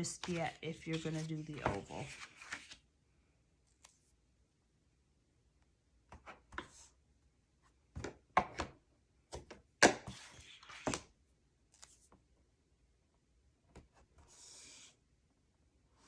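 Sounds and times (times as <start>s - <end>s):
paper rustling: 0.0s - 2.8s.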